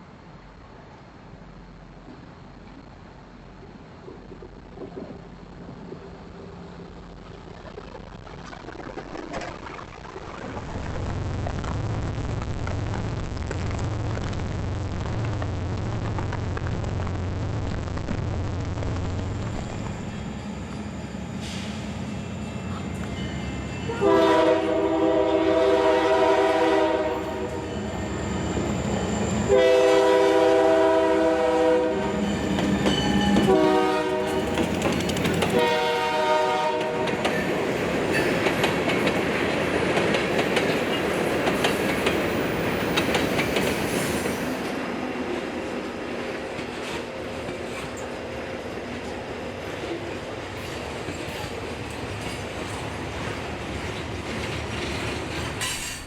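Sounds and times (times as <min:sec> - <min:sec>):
locomotive air horn: 0:23.9 - 0:27.9, 0:29.5 - 0:32.5, 0:33.3 - 0:34.7, 0:35.5 - 0:37.2
train wheels clacking on rails: 0:32.2 - 0:35.8, 0:36.7 - 0:56.0.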